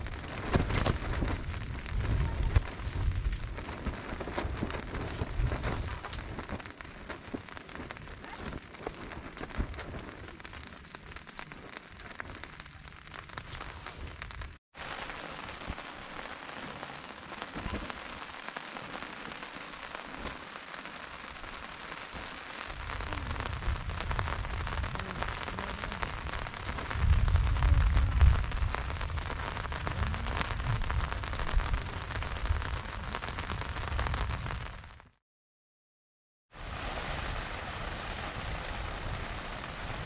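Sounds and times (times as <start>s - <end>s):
low rumble: 0.0s - 14.5s
heavy rain falling: 0.0s - 35.0s, 36.5s - 40.0s.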